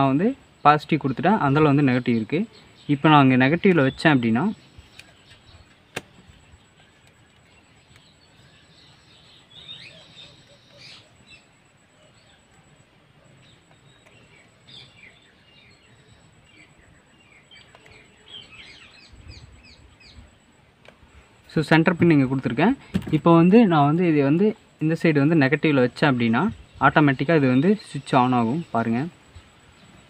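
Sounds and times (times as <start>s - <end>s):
birds chirping: 0.0s - 30.0s
sharp click: 4.9s - 6.3s.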